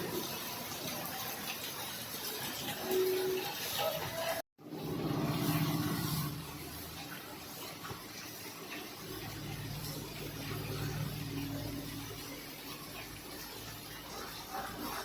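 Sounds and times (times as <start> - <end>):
heavy rain falling: 0.0 - 15.0
vehicle engine humming: 9.0 - 14.0.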